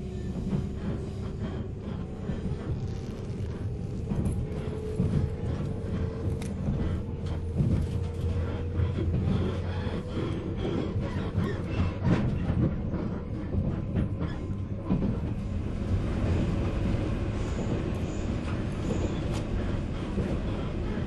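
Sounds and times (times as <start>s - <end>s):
train wheels rumbling on rails: 0.0s - 21.0s
rail-joint clicks: 0.3s - 15.5s.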